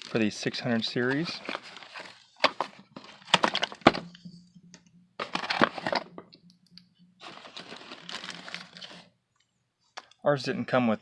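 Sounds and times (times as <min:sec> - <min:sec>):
plastic packaging crackling: 0:07.2 - 0:09.1.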